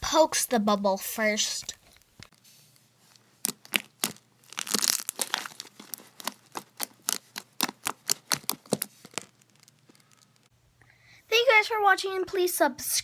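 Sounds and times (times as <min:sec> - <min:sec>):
crackling rustle: 0:01.6 - 0:10.5.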